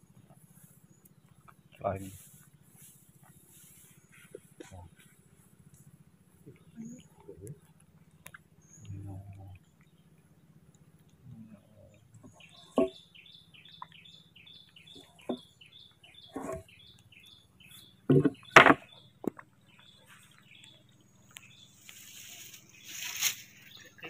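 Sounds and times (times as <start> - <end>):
rustle: 2.0 - 6.4, 21.3 - 24.0
bird chirping rapidly: 12.2 - 24.0.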